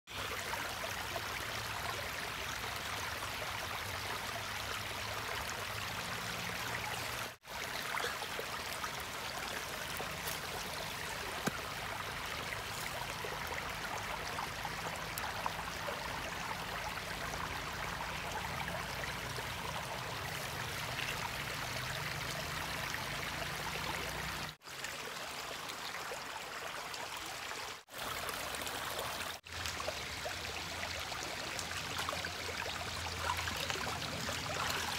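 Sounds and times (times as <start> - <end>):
stream water running: 0.1 - 34.9.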